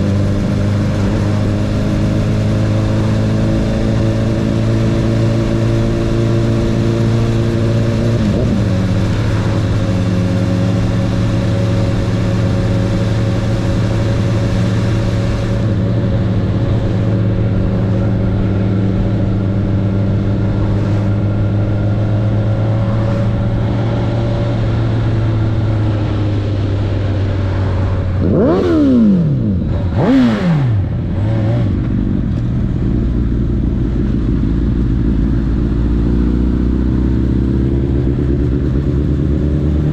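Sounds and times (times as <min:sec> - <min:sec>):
motorcycle engine idling: 0:37.4 - 0:39.6.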